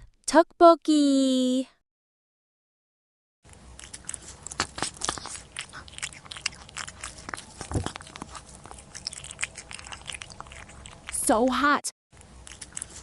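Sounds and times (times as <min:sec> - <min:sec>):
person chewing food: 0:03.5 - 0:11.3, 0:12.2 - 0:13.0.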